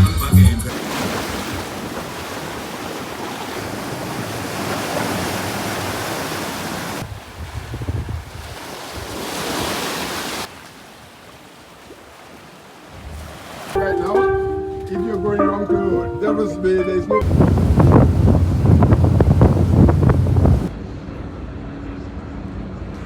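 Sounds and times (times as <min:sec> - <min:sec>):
sea surf washing in: 0:00.7 - 0:20.7
wind buffeting microphone: 0:01.2 - 0:09.8, 0:17.2 - 0:20.7.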